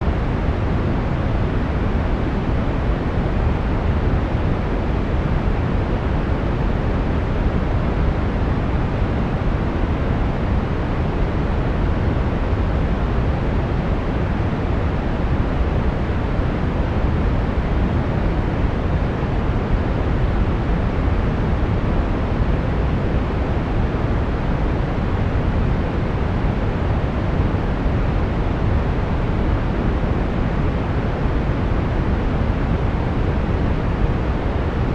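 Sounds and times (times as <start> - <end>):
brown noise hiss: 0.0 - 34.9.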